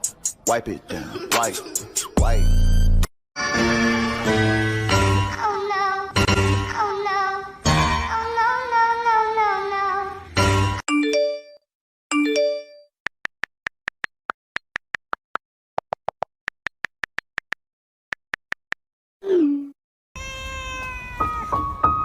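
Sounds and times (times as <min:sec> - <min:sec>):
music: 0:01.4 - 0:10.8, 0:21.2 - 0:22.0
cat meowing: 0:20.2 - 0:21.7.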